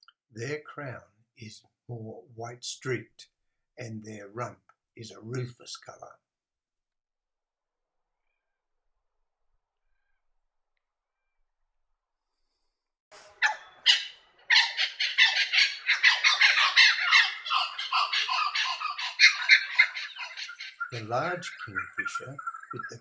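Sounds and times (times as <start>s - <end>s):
kookaburra cackling call: 13.4s - 23.0s.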